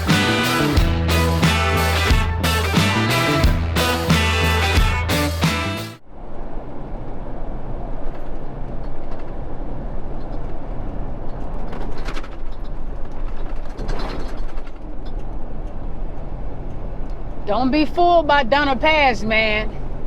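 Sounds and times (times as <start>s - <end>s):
burst of music: 0.0s - 6.0s
truck engine and road drone: 0.0s - 8.5s.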